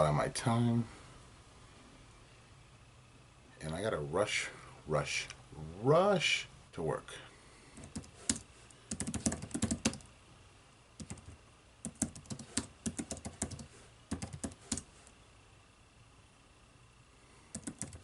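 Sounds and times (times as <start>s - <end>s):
typing on computer keyboard: 7.8s - 10.1s, 11.0s - 14.9s, 17.5s - 18.0s.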